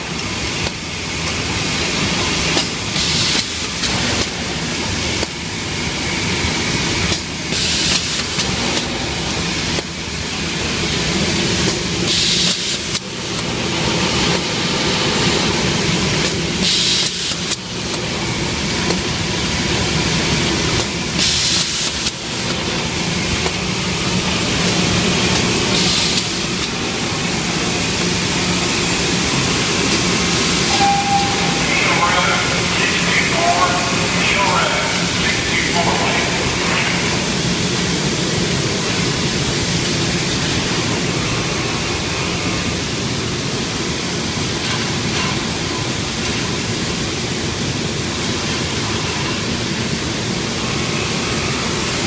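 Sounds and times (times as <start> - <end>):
factory machinery clatter and hum: 0.0 - 52.0
air hiss bursts: 2.9 - 3.8, 7.5 - 8.8, 12.1 - 13.0, 16.6 - 17.6, 21.2 - 22.2, 25.7 - 26.6.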